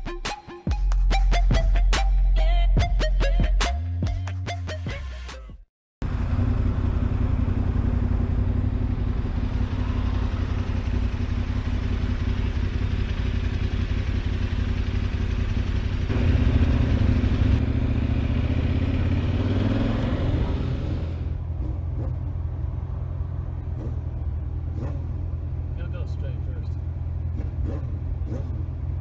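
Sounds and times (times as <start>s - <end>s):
motorcycle engine running: 6.0s - 29.0s
road and wind noise: 6.0s - 29.0s.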